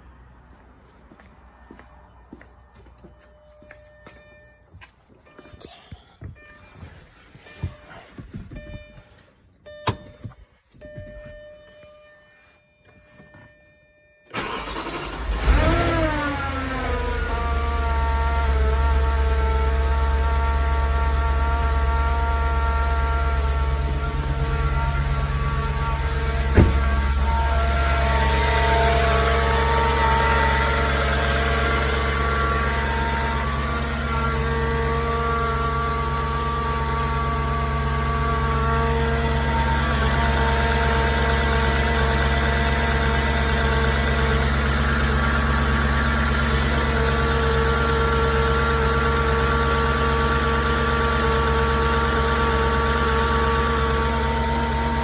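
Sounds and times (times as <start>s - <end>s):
car engine idling: 14.4s - 55.0s.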